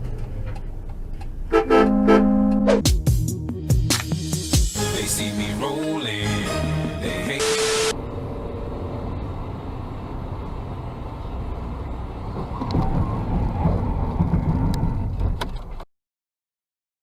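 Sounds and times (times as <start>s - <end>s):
engine and tyre rumble: 0.0s - 2.8s, 7.9s - 15.8s.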